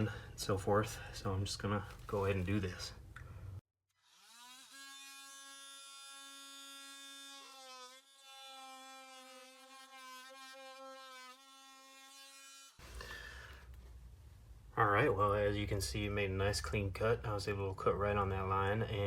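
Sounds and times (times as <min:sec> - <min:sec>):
oscillating saw cutting wood: 0:04.0 - 0:12.8.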